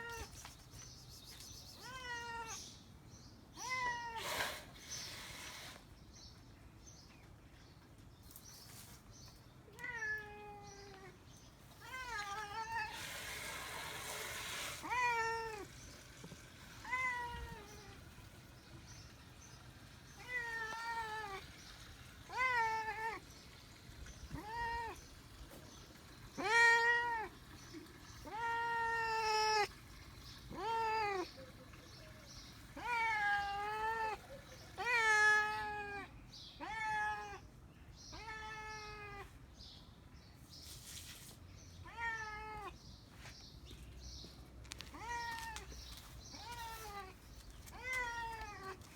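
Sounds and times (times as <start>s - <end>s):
cat meowing: 1.8s - 2.7s, 3.6s - 4.2s, 9.7s - 11.2s, 11.8s - 13.1s, 14.8s - 15.8s, 16.8s - 18.1s, 20.1s - 21.6s, 22.3s - 23.2s, 24.3s - 25.1s, 26.3s - 27.4s, 28.2s - 29.8s, 30.4s - 31.4s, 32.7s - 37.5s, 38.1s - 39.4s, 41.8s - 42.8s, 44.8s - 48.9s.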